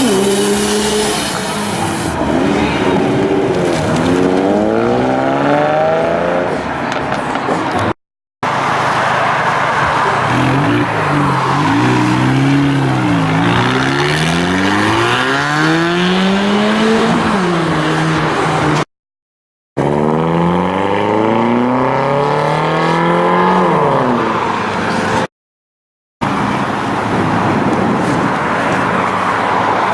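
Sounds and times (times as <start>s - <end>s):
car engines accelerating hard: 0.0s - 18.8s, 19.8s - 25.3s.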